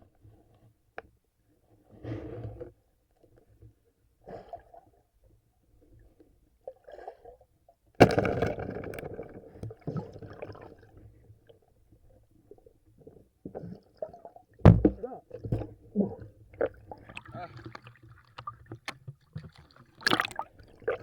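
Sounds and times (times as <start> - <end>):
water splashing and gurgling: 13.6 - 21.0.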